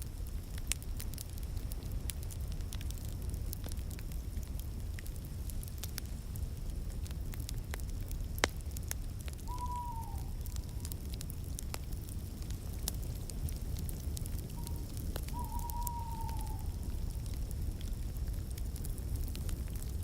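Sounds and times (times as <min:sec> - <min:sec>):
fire crackling and popping: 0:00.0 - 0:20.0.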